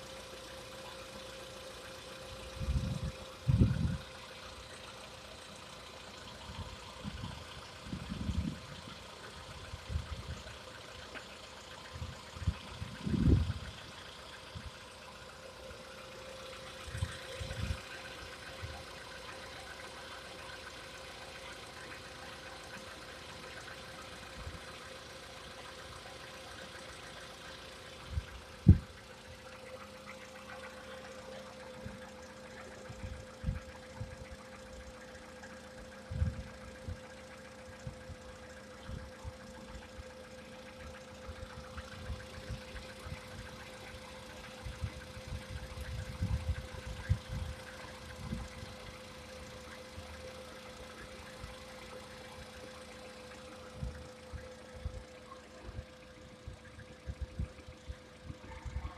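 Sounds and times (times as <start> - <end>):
car engine idling: 0.0 - 58.9.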